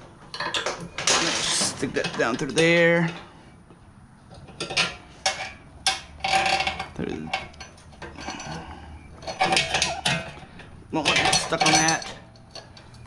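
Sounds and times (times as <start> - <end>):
metal chain links clinking: 4.5 - 13.0.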